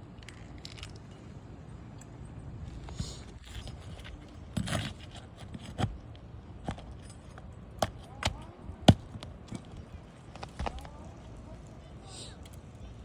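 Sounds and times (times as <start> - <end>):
metal tool scraping roof shingles: 3.6 - 6.0.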